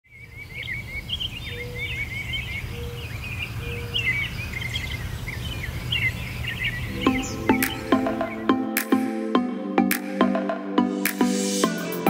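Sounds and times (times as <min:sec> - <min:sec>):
birds chirping and whistling: 0:00.1 - 0:08.8
low hooting notes: 0:06.8 - 0:11.1.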